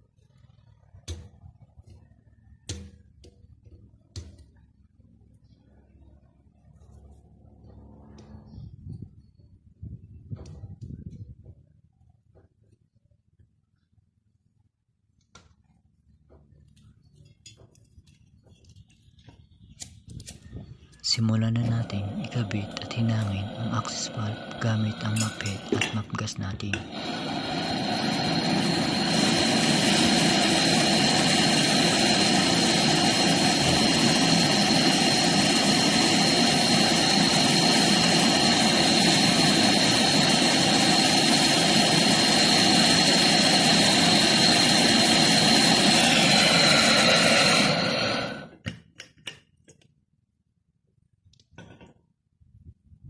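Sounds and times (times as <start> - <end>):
gas torch hissing: 19.7 - 48.6.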